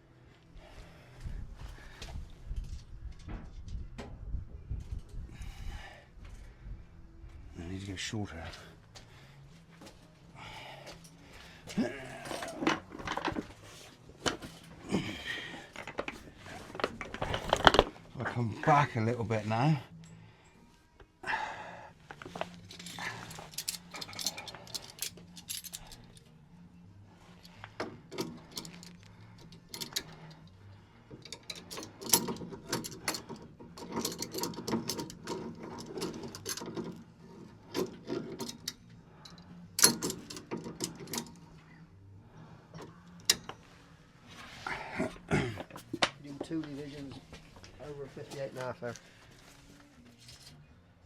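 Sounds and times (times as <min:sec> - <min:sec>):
hand tools clinking on metal: 0:11.8 - 0:13.4, 0:22.3 - 0:26.3, 0:27.3 - 0:41.4.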